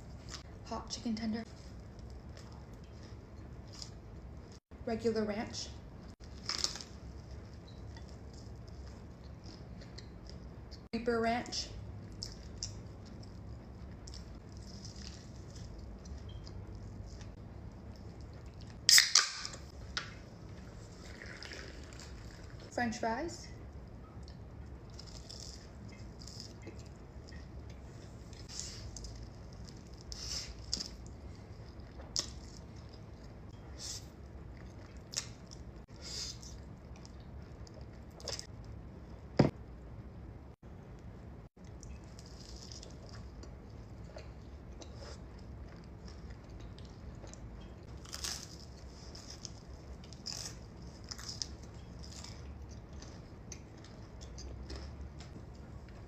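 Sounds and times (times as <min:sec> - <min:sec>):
chewing with wet mouth sounds: 0:41.6 - 0:56.0.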